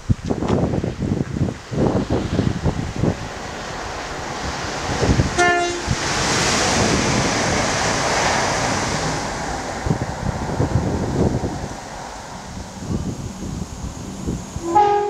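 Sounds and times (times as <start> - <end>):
train passing close by: 0.0 - 15.0
train horn blast: 5.4 - 6.0, 14.6 - 15.0.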